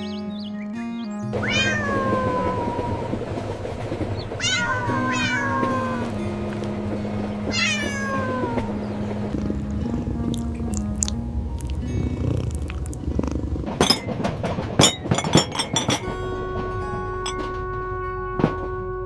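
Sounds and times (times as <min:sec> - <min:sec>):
light background music: 0:00.0 - 0:19.0
cat meowing: 0:01.4 - 0:03.2, 0:04.4 - 0:06.3, 0:07.5 - 0:08.8.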